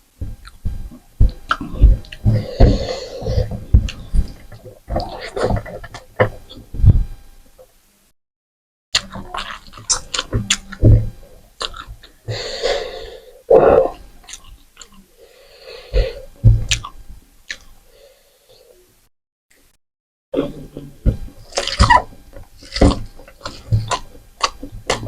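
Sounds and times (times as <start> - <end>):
wet chewing and lip-smacking: 0.4 - 2.9, 9.0 - 10.8, 11.6 - 12.2, 14.2 - 15.1, 21.4 - 22.0, 22.6 - 25.0
breathing: 2.3 - 3.7, 12.3 - 13.4, 15.1 - 16.4, 17.8 - 18.8.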